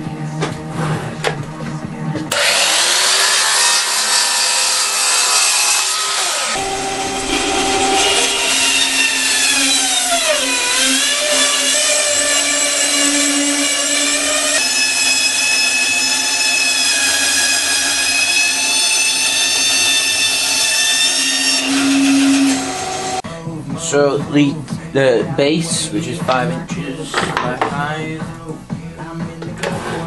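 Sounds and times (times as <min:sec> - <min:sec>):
electric saw cutting wood: 0:02.3 - 0:23.2.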